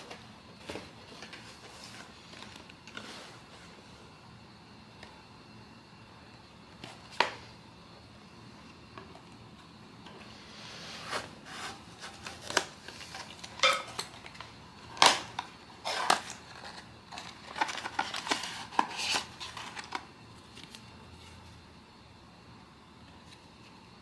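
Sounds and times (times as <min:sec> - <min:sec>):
packaging crinkling: 0:11.1 - 0:20.9.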